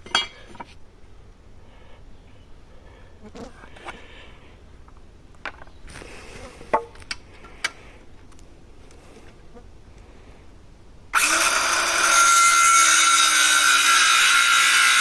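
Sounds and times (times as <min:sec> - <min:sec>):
low background hum: 0:00.0 - 0:11.2.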